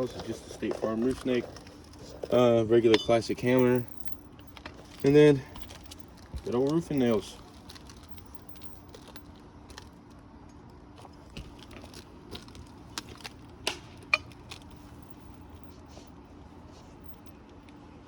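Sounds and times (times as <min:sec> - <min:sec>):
faint steady hum: 0:00.0 - 0:18.0
hand tools clicking and tapping: 0:13.7 - 0:14.6.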